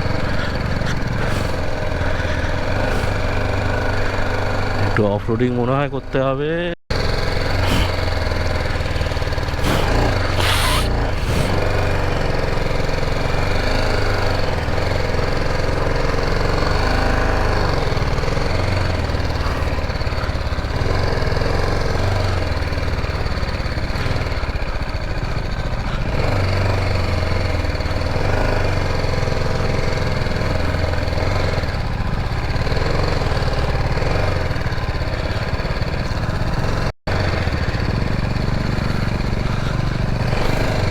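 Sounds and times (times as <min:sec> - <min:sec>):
motorcycle engine revving: 0:00.0 - 0:06.1, 0:06.9 - 0:40.9
short rush of noise: 0:09.6 - 0:12.0.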